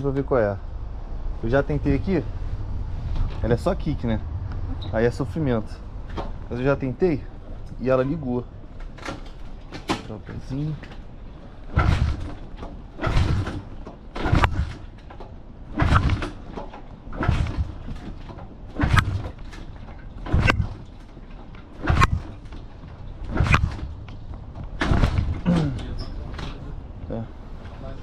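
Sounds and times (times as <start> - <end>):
engine turning over: 11.7 - 21.0
motorcycle kick-starting: 11.7 - 26.6.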